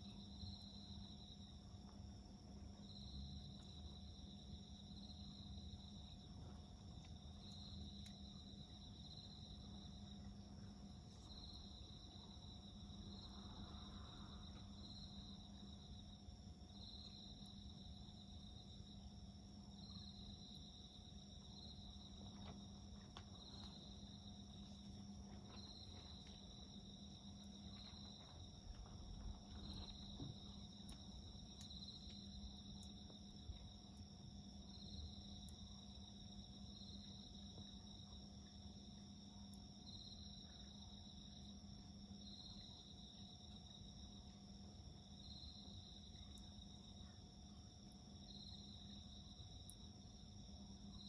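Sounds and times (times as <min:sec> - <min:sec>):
wood fire crackling: 0:00.0 - 0:35.6
insects chirping: 0:00.0 - 0:51.0.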